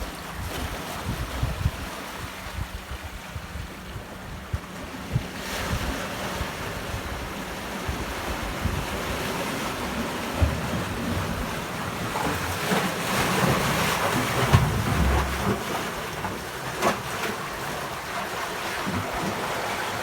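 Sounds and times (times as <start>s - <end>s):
wind buffeting microphone: 0.0s - 12.8s
ocean surf breaking: 7.5s - 20.0s.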